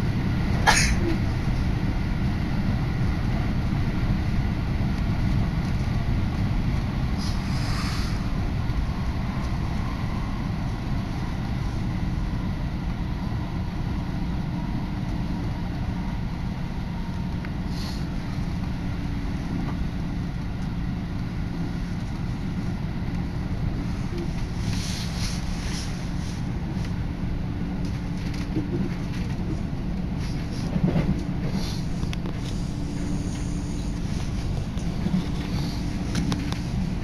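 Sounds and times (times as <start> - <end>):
train rumble: 0.0 - 37.0
wind rushing at window: 0.0 - 37.0
air hissing: 7.2 - 8.4.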